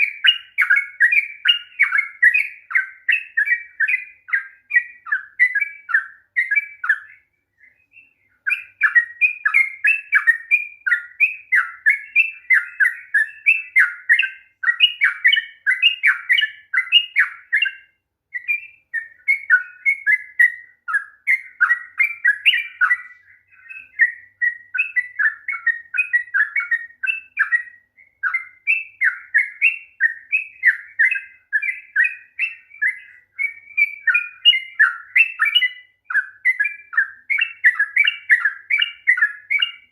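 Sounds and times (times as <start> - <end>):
bird singing bubbly chattering notes: 18.4 - 39.9.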